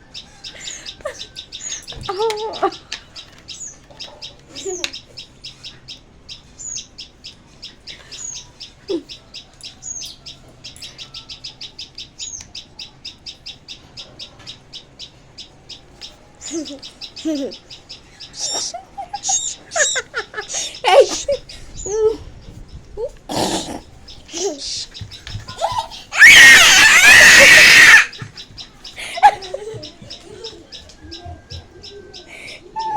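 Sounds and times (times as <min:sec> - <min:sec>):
small bird chirping: 0:00.0 - 0:32.9
louder lower bird calls: 0:23.3 - 0:32.9.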